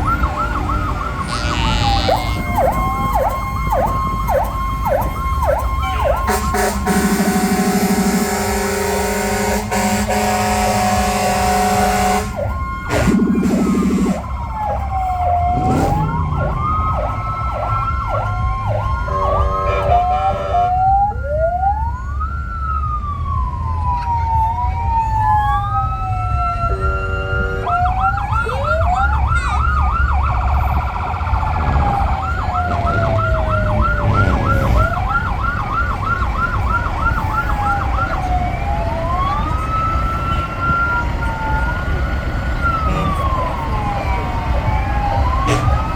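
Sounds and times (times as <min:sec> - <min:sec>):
diesel truck engines rumbling: 0:00.0 - 0:45.9
sirens wailing and yelping: 0:00.0 - 0:45.9
truck horn: 0:01.1 - 0:02.8, 0:05.8 - 0:14.3, 0:19.0 - 0:20.8, 0:26.7 - 0:28.0, 0:42.7 - 0:43.7, 0:45.2 - 0:45.9.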